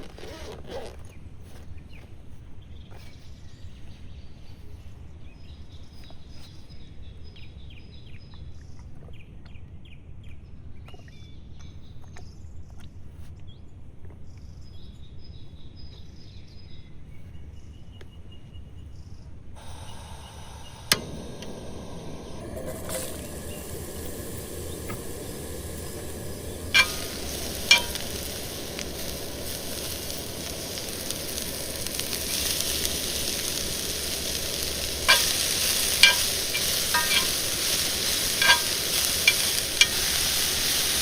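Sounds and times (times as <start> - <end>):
hiss: 19.6 - 41.0.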